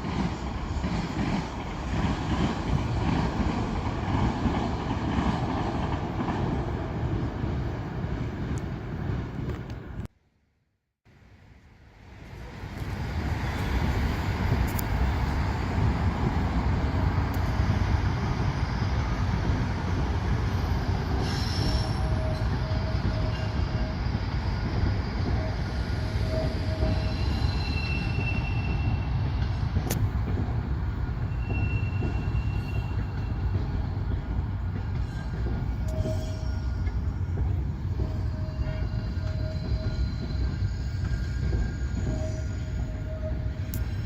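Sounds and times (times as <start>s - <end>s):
subway train rumbling: 0.0s - 10.1s, 11.1s - 44.0s
wheel squeals: 25.4s - 29.2s, 31.2s - 33.6s, 35.0s - 37.2s, 37.9s - 44.0s.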